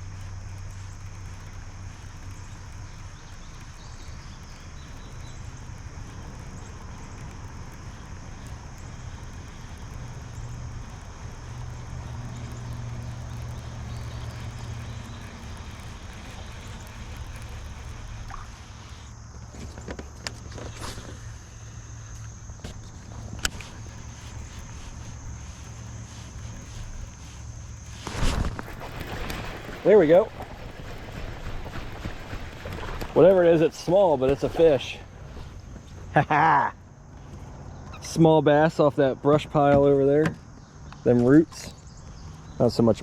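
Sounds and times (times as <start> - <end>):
electric motor humming: 0.0 - 28.4
high motor whine: 0.0 - 30.8.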